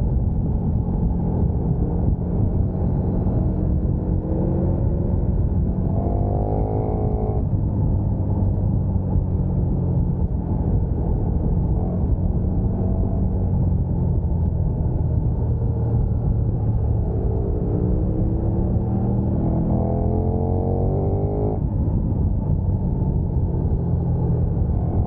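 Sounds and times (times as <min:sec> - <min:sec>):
wind and road rumble: 0:00.0 - 0:25.0
motorcycle engine revving: 0:00.7 - 0:07.8, 0:15.5 - 0:21.7.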